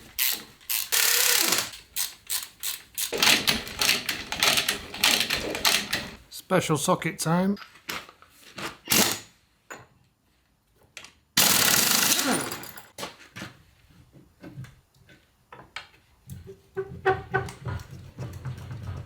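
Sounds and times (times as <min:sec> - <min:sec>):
impact wrench rattling: 0:00.2 - 0:06.2, 0:11.4 - 0:12.8.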